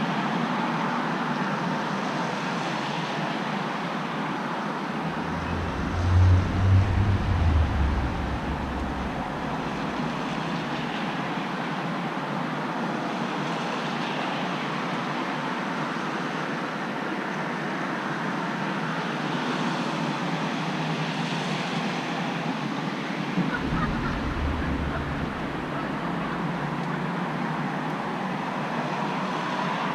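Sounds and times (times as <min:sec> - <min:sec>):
low rumble: 0:05.0 - 0:11.0, 0:23.4 - 0:27.3
road traffic: 0:05.0 - 0:11.1, 0:23.4 - 0:27.4
rain hissing: 0:05.1 - 0:10.9, 0:23.4 - 0:27.0.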